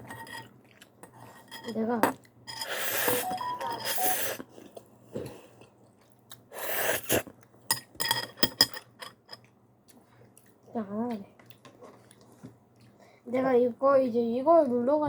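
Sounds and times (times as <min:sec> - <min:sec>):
noodle slurping: 0:06.6 - 0:07.3
chewing: 0:09.4 - 0:13.1.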